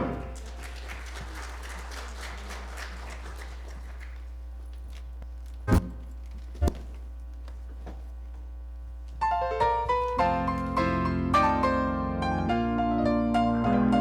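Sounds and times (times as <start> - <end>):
piano playing: 0.0 - 0.5, 9.2 - 14.0
steady low hum: 0.0 - 14.0
sharp thumps: 5.7 - 6.9.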